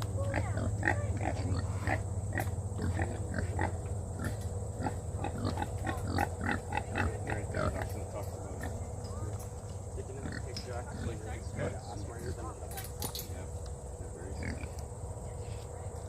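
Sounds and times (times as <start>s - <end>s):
low hum: 0.0s - 16.0s
pigs grunting: 0.2s - 9.1s, 10.0s - 12.4s, 14.3s - 14.9s.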